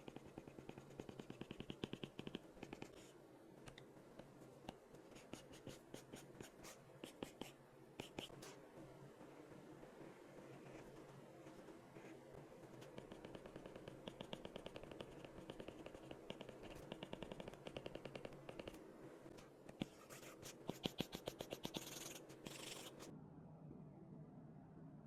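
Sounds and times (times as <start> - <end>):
pencil strokes scratching on paper: 0.0 - 3.2, 5.0 - 8.5, 19.8 - 23.1.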